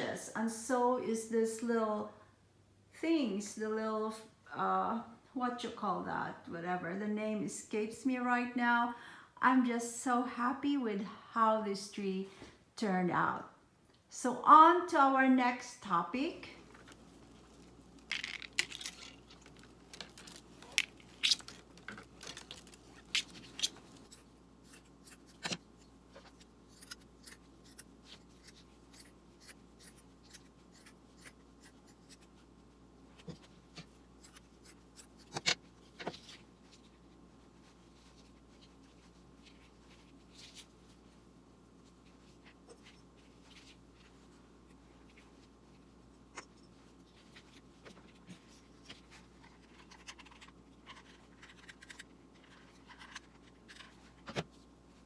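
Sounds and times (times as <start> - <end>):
faint steady hum: 0.0 - 55.0
objects being handled: 16.6 - 32.4.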